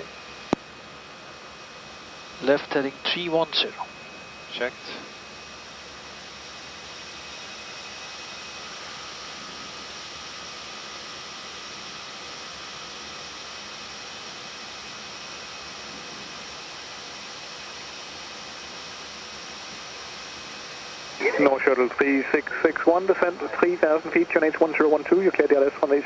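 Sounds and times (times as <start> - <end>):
airflow and engine rushing: 20.0 - 26.0
faint steady tones: 20.1 - 26.0.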